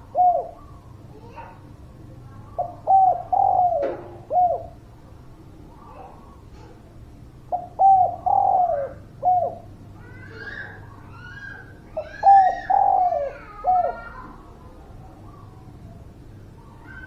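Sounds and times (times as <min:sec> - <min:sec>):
dove cooing: 0:00.0 - 0:01.4, 0:02.5 - 0:04.8, 0:07.5 - 0:09.8, 0:10.4 - 0:14.5.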